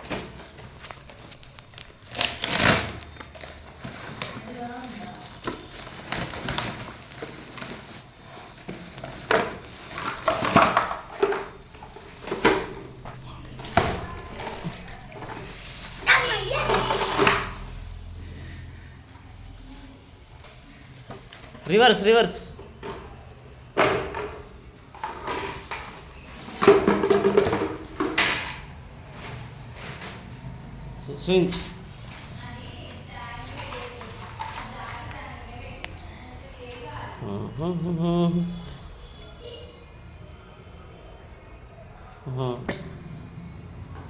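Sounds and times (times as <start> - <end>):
hard plastic pieces clattering: 8.7 - 15.4.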